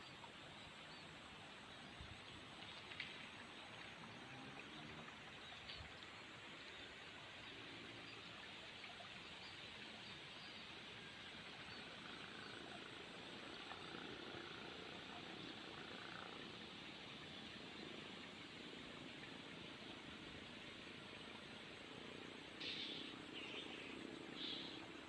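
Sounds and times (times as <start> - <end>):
faint steady hiss: 0.0 - 25.0.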